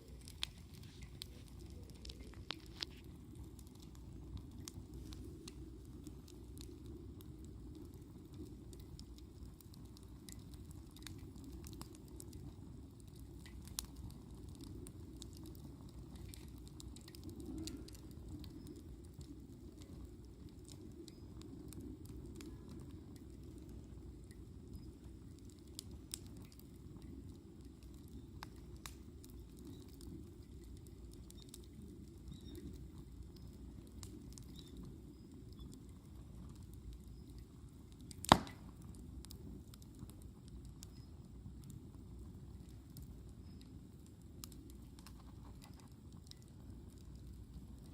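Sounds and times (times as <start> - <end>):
campfire crackling and popping: 0.0 - 47.9.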